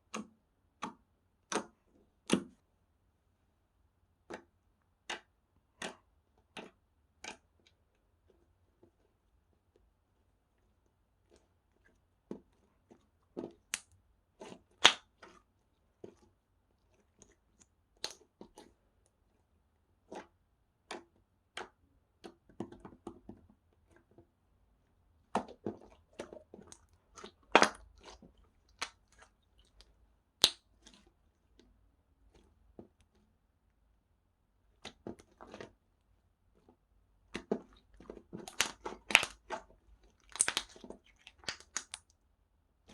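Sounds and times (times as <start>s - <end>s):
slime squished by hand: 25.3s - 31.1s, 37.4s - 42.1s
sharp pops and clicks: 28.7s - 30.7s, 38.4s - 39.6s, 40.2s - 42.1s.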